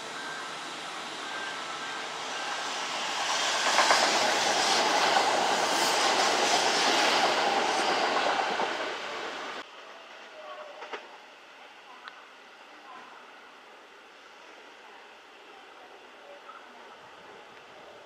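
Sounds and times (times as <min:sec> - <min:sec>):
electric train passing: 0:00.0 - 0:11.6.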